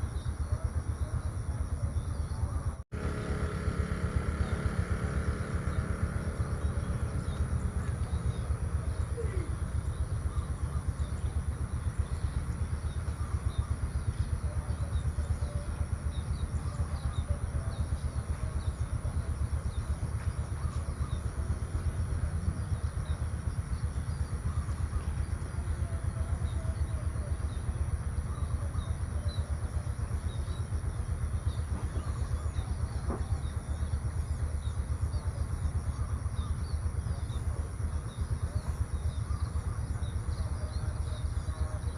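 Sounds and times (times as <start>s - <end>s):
small birds chirping: 0.0s - 41.9s
high-pitched hum: 2.9s - 17.7s.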